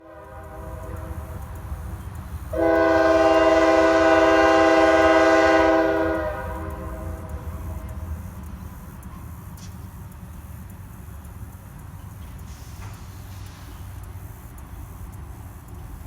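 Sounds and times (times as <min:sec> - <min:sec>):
locomotive air horn: 0:00.0 - 0:08.2
train rumbling past: 0:00.0 - 0:16.0.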